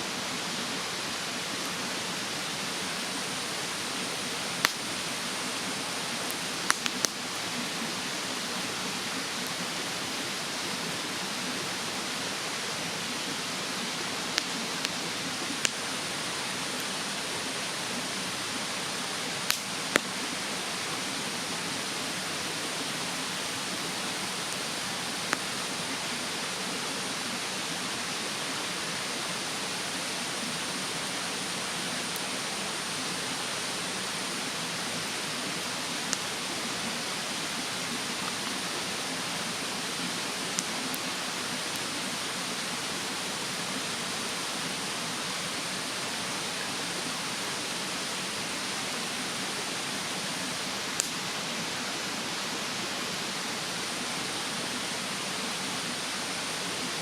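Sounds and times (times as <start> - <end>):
mountain stream rushing: 0.0 - 57.0
wood fire crackling and popping: 4.6 - 5.0, 6.2 - 7.4, 14.3 - 15.0, 15.6 - 15.8, 19.4 - 20.1, 51.0 - 51.2.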